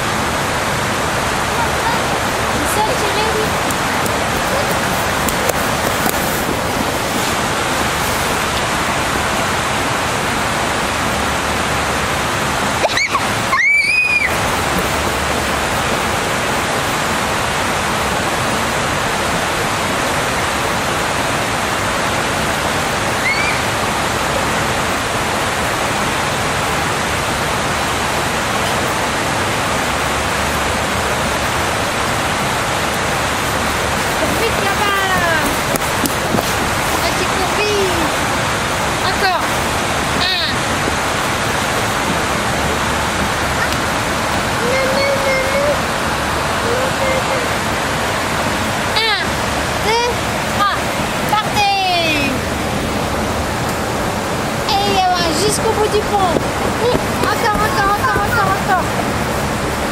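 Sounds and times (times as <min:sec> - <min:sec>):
flowing river water: 0:00.0 - 0:59.9.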